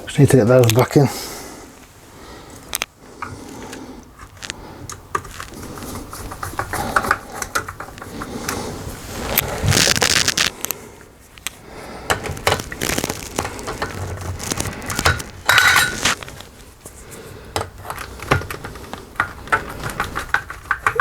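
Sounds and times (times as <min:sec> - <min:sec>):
screws clinking on metal: 0:15.0 - 0:16.2.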